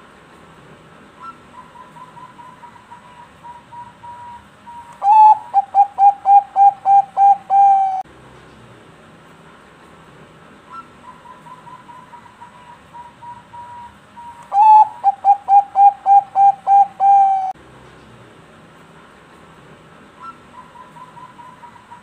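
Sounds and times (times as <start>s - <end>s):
dove cooing: 5.0s - 8.0s, 10.7s - 17.6s, 20.2s - 22.0s.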